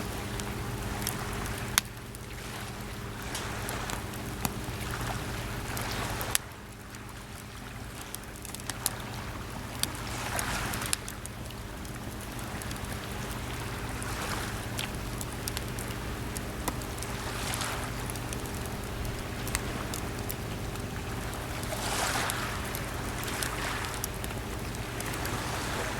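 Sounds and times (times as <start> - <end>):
campfire crackling and popping: 0.0 - 25.9
small waves washing onto shore: 0.0 - 25.9
steady low hum: 0.0 - 25.9.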